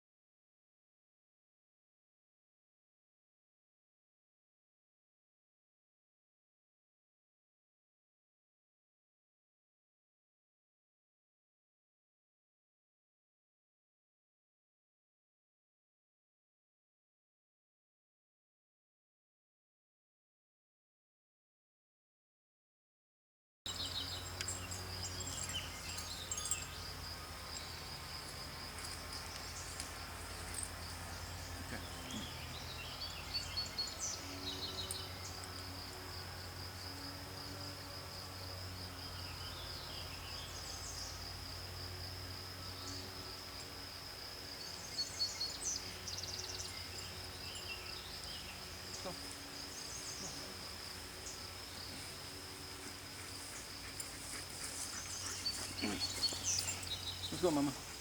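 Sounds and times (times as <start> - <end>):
insects trilling: 23.7 - 58.0.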